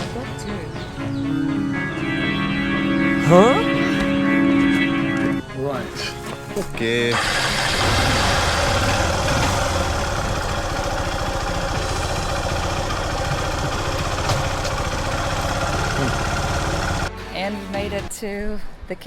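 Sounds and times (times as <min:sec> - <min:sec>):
motorcycle engine running: 0:07.1 - 0:17.1.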